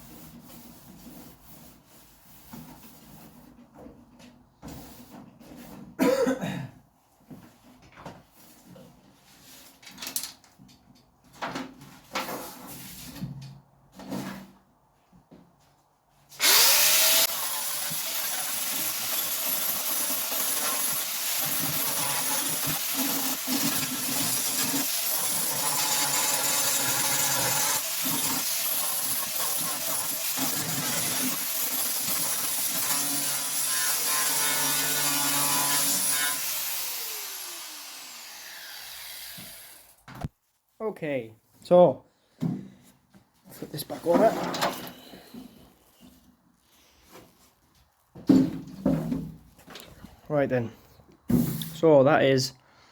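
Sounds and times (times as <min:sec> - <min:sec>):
angle grinder grinding metal: 0:16.4 - 0:39.8.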